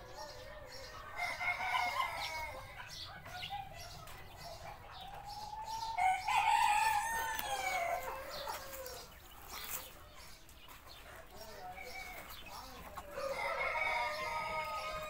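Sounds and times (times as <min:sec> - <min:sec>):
rooster crowing: 0:00.2 - 0:02.8, 0:05.7 - 0:09.1, 0:13.1 - 0:15.0.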